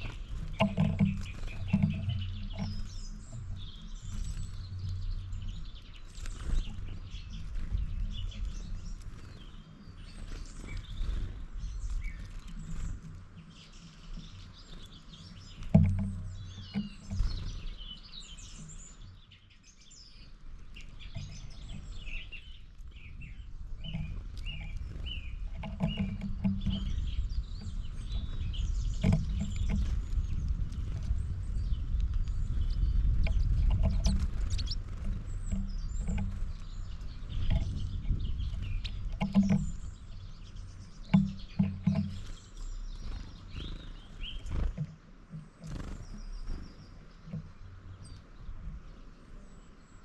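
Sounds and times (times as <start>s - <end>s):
small birds chirping: 0.0s - 50.0s
low rumble: 22.9s - 44.5s.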